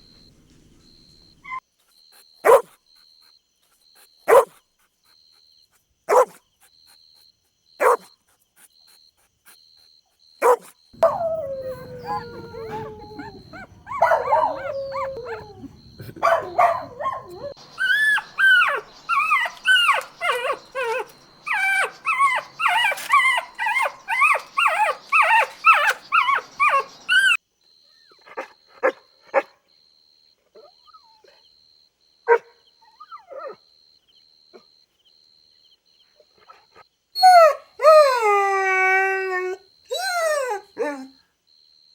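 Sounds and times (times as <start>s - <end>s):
dog howling: 2.4s - 2.6s, 4.3s - 4.5s, 6.1s - 6.4s, 7.8s - 8.0s, 10.4s - 27.4s
dog yipping: 2.4s - 2.7s, 4.3s - 4.6s, 6.1s - 6.4s, 7.8s - 8.1s, 10.4s - 27.4s
dog barking: 2.4s - 2.8s, 4.0s - 4.6s, 6.1s - 6.4s, 7.8s - 8.1s, 10.4s - 27.4s, 28.3s - 29.6s, 32.3s - 32.7s.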